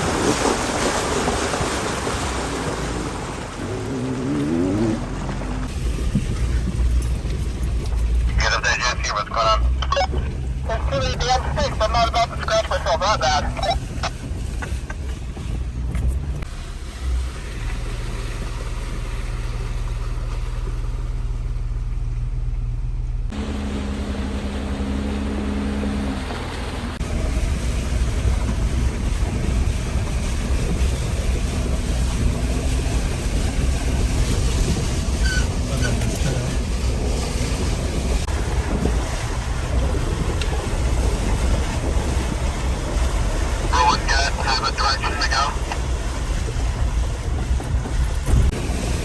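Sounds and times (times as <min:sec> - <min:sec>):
engine running: 0:00.0 - 0:49.0
steady rushing noise: 0:08.3 - 0:15.8, 0:37.8 - 0:49.0.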